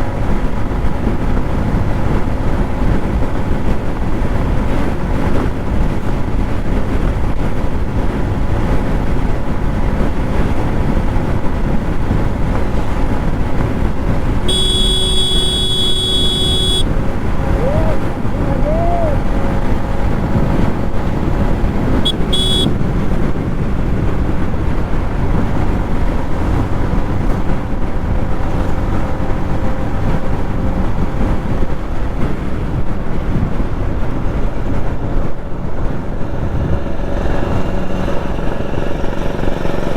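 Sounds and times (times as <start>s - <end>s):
motorcycle engine at speed: 0.0s - 39.9s
wind and road noise: 0.0s - 39.9s
vehicle horn: 14.4s - 18.1s, 22.0s - 22.8s.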